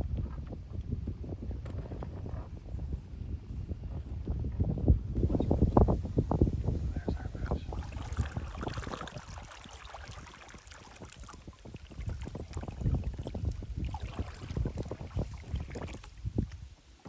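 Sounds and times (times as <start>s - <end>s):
wind on microphone: 0.0s - 17.0s
paddle strokes splashing: 7.7s - 17.0s.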